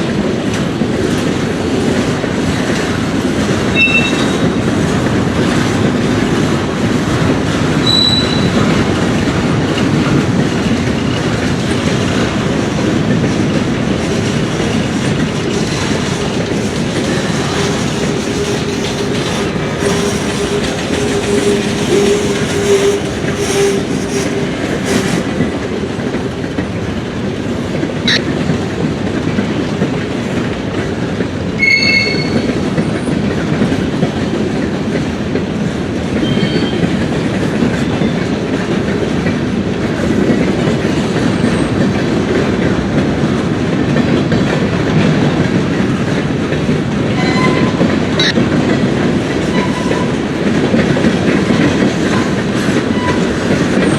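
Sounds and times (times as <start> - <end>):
train wheels clattering: 0.0 - 53.9
high squeal: 3.7 - 4.5, 7.8 - 8.6, 17.1 - 25.2, 31.6 - 32.5.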